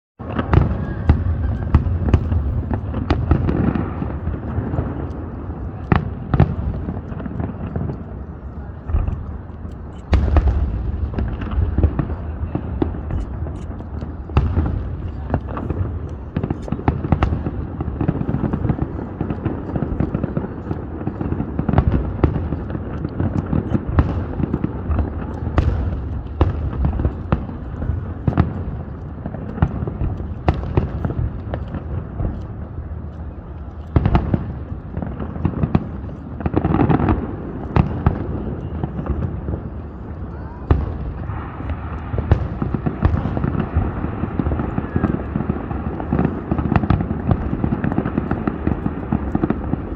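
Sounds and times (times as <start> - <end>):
fireworks bangs: 0.2 - 49.9
low rumble of booms: 8.8 - 20.2.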